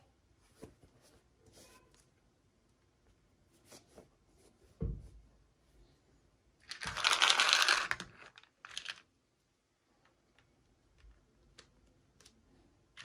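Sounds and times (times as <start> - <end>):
soft thump: 4.8 - 5.2.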